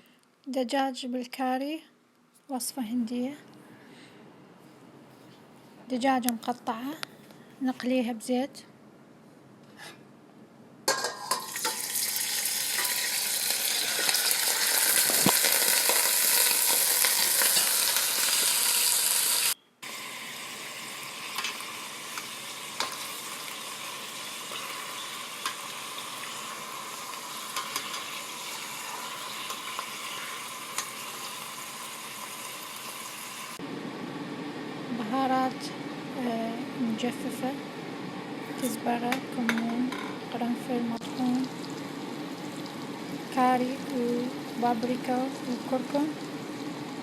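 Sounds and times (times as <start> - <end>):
chicken sizzling in hot oil: 10.9 - 33.6, 41.0 - 47.0.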